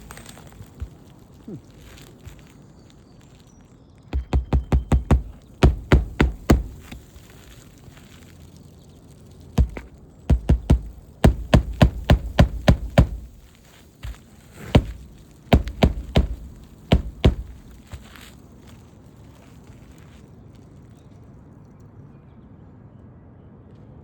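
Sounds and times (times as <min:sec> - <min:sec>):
hammer driving nails: 0:04.2 - 0:07.1, 0:09.6 - 0:18.3.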